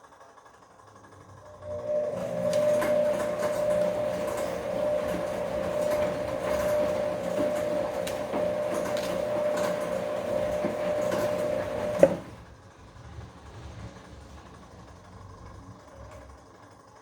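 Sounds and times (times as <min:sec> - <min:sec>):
washing machine motor whine: 0:01.3 - 0:12.7.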